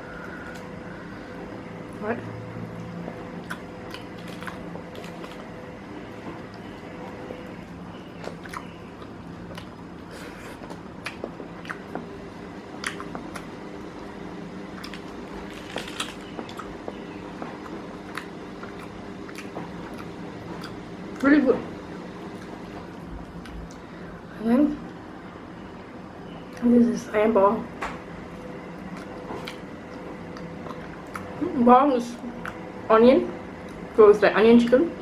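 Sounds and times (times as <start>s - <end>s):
faint steady hum: 0.0s - 35.0s
person chewing food: 2.7s - 5.5s, 8.2s - 12.1s, 12.8s - 14.0s, 14.7s - 21.2s, 22.2s - 23.8s, 28.8s - 31.4s.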